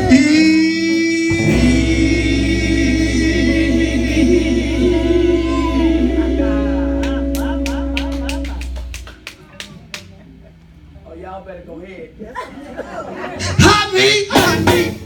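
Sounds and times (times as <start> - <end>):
person singing gospel: 0.0 - 9.1, 13.4 - 15.0
low instrumental drone: 0.0 - 9.6.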